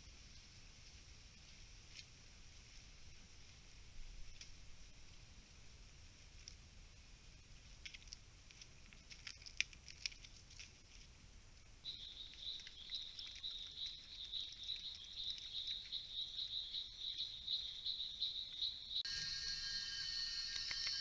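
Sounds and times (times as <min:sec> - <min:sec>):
light ticking and crackling: 0:07.6 - 0:16.4
insect chirping in pulses: 0:11.9 - 0:21.0.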